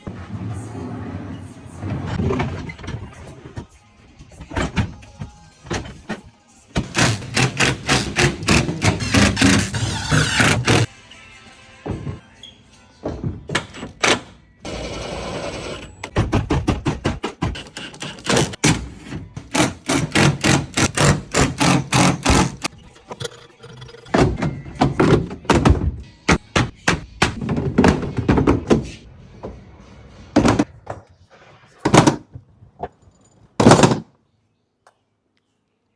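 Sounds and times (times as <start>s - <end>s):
hard objects knocking and banging: 4.4s - 10.9s, 16.0s - 29.6s, 30.3s - 31.1s, 31.8s - 34.1s.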